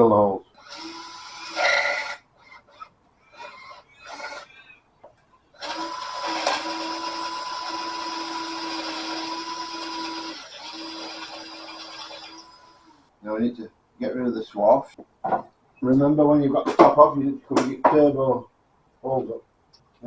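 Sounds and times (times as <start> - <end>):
power drill drilling: 0.6 - 4.7, 5.6 - 13.1.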